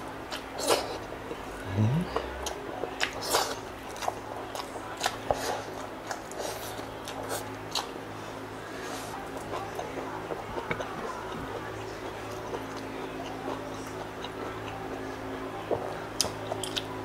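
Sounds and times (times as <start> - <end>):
person chewing with mouth smacks: 15.7 - 16.9.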